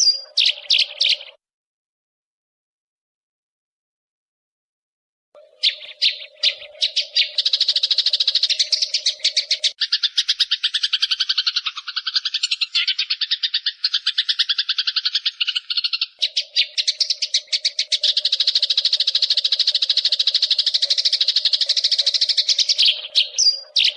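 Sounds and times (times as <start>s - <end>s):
lower bird chirps: 0.0s - 1.4s, 5.4s - 23.9s
sparrows chirping rapidly: 0.0s - 1.4s, 5.4s - 23.9s.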